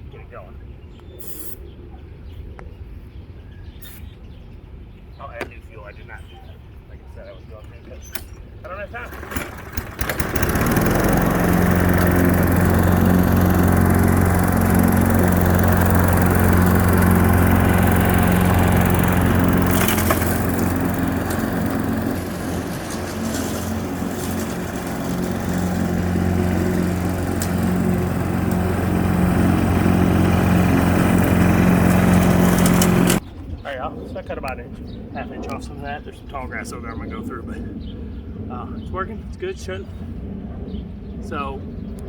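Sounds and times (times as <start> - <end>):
lawn mower engine running: 8.7 - 33.2.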